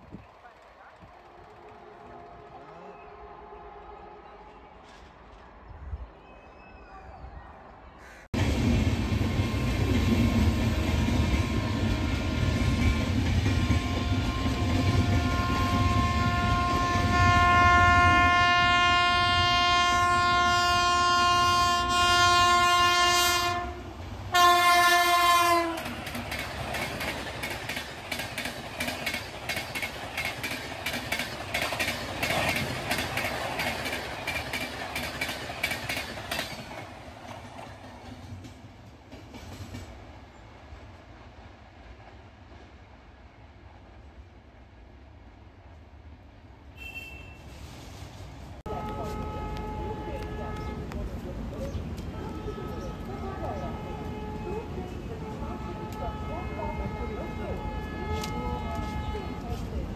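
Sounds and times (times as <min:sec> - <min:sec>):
fast train rumble: 0:00.0 - 0:06.1, 0:08.2 - 0:59.9
locomotive horn: 0:01.1 - 0:04.9, 0:10.4 - 0:26.0, 0:46.8 - 0:47.7, 0:48.7 - 0:51.1, 0:52.0 - 0:59.7
wheels clicking over rail joints: 0:25.0 - 0:40.2.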